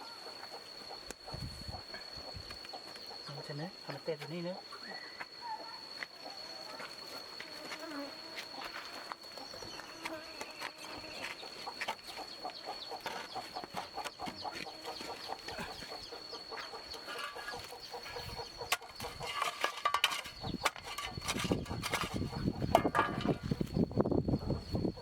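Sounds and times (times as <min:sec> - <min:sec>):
high-pitched insect drone: 0:00.0 - 0:25.0
chickens clucking: 0:11.2 - 0:25.0.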